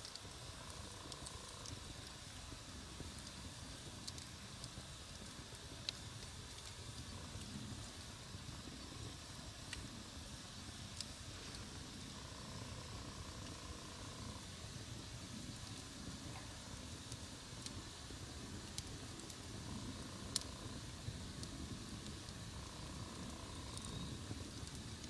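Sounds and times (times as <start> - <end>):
burning wood crackling: 0.0 - 25.0.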